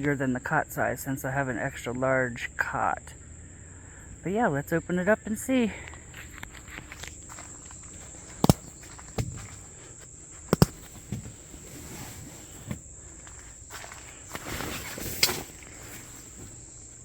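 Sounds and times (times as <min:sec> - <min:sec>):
mattress pad rustling: 0:07.3 - 0:17.0
sharp clicks and knocks: 0:08.4 - 0:09.5, 0:10.5 - 0:11.3.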